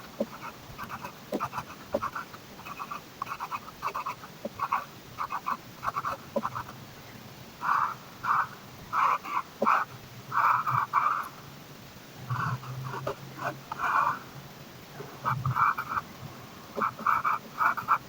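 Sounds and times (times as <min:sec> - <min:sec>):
pen scratching on paper: 0:00.0 - 0:06.7, 0:15.2 - 0:16.0, 0:16.8 - 0:18.0.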